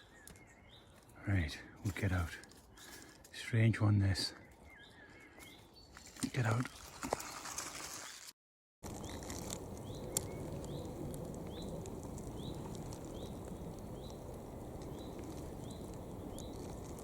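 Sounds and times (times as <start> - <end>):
steady wind: 8.8 - 17.0.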